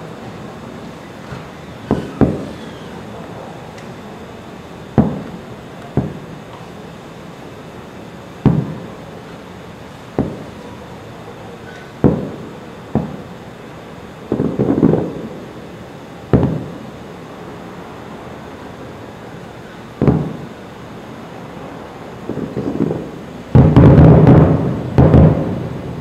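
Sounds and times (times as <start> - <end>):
firework shells bursting: 1.2 - 3.1, 8.4 - 9.4, 10.1 - 10.7, 11.7 - 13.3, 19.6 - 20.5, 22.2 - 26.0.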